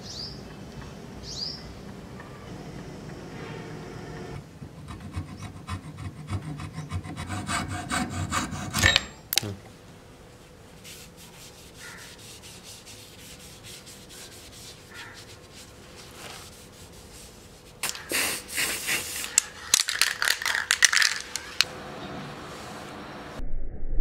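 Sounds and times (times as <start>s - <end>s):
cloth rubbing wooden handle: 10.8s - 17.8s.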